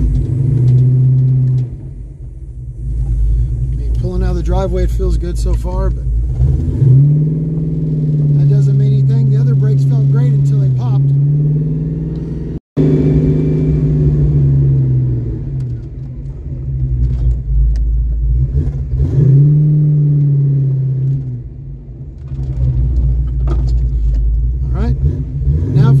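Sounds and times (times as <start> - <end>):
car engine heard from cabin: 0.0 - 26.0.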